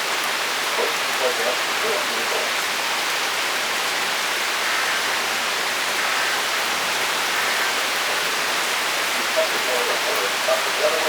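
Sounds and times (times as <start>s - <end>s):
torrential rain pouring: 0.0s - 11.0s.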